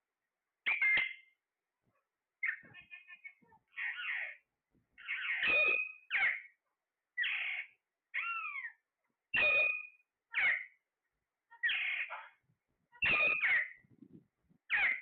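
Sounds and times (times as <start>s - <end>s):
parrot screeches: 5.0s - 6.5s, 7.2s - 8.8s, 9.4s - 10.8s, 11.6s - 12.3s, 13.0s - 13.8s, 14.7s - 15.0s.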